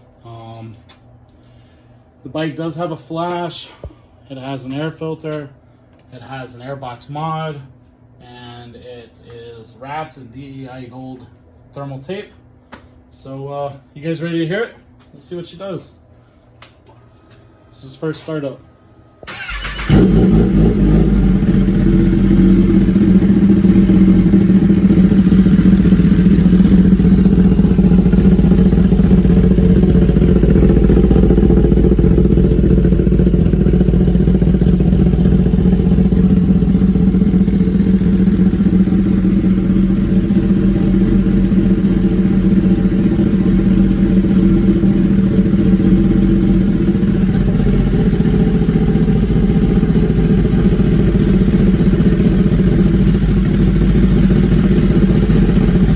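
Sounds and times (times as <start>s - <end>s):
motorcycle engine idling: 19.3s - 55.9s.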